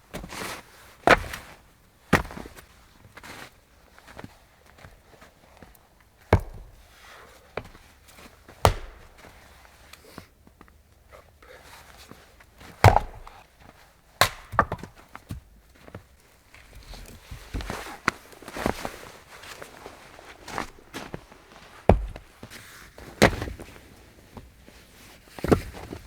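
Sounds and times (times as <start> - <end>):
wood being chopped: 1.1 - 1.6, 2.2 - 2.5, 6.3 - 6.9, 8.5 - 9.6, 12.6 - 15.5, 21.8 - 22.5, 23.1 - 23.7.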